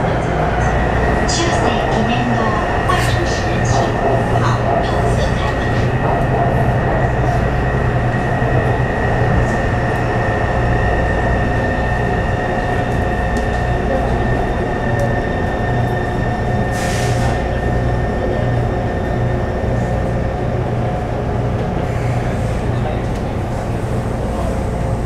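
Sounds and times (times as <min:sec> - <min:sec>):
train wheel rumble: 0:00.0 - 0:25.0.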